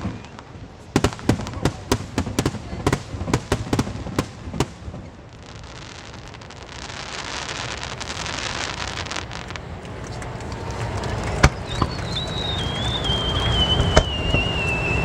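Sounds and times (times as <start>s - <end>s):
fireworks crackling hiss: 0.0s - 15.0s
firework bang: 7.5s - 15.0s
firework whistle sliding lower: 10.5s - 15.0s.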